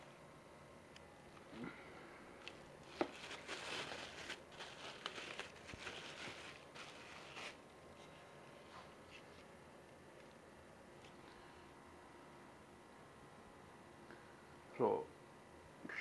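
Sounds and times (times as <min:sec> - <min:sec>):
packaging crinkling and rustling: 0:02.4 - 0:07.6.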